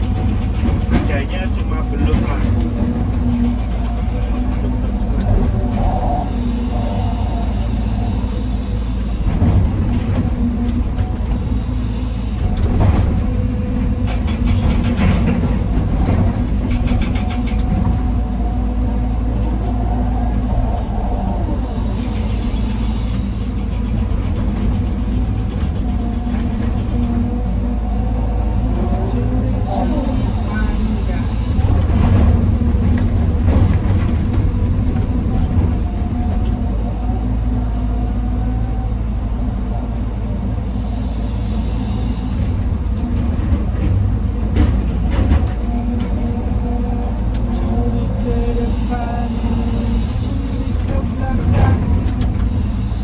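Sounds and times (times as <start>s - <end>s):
excavator diesel engine running: 0.0s - 53.0s
hiss: 6.2s - 9.5s, 11.4s - 14.9s, 21.4s - 25.2s, 29.7s - 32.3s, 40.5s - 44.9s, 48.2s - 53.0s.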